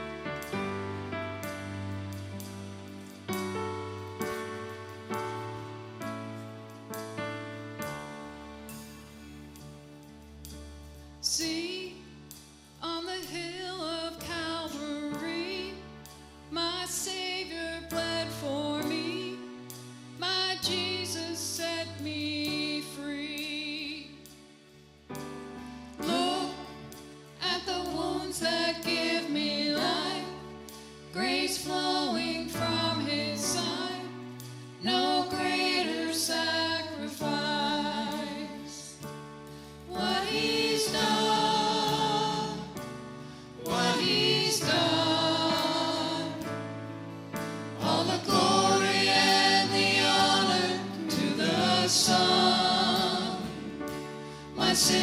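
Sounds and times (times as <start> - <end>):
instrumental accompaniment: 0.0 - 12.8, 33.4 - 55.0
vocal group singing gospel: 26.0 - 39.0, 39.6 - 46.5, 47.6 - 55.0.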